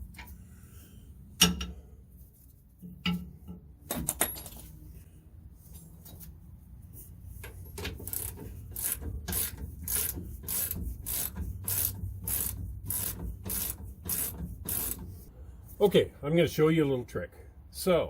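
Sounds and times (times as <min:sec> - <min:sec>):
ratchet wrench rasping: 0:07.7 - 0:15.3.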